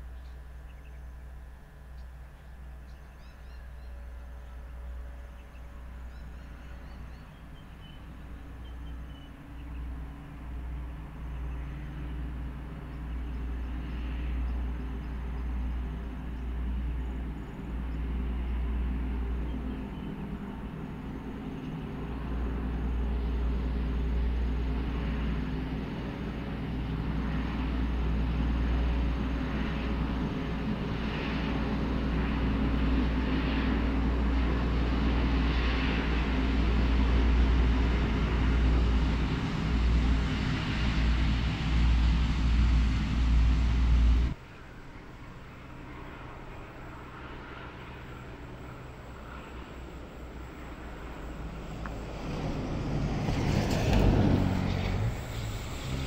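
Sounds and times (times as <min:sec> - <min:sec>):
diesel train engine drone: 0:00.0 - 0:56.0
train wheels on rails: 0:53.2 - 0:56.0.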